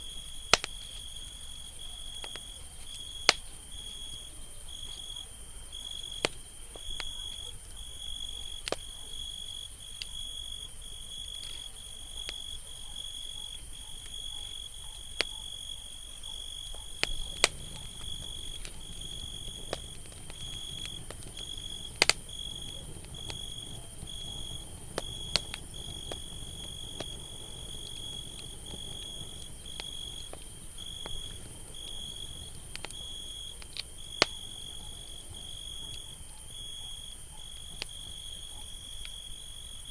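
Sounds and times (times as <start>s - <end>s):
campfire crackling: 0.0s - 39.9s
cricket chirping: 0.0s - 39.9s
low rush of flame: 17.0s - 36.7s.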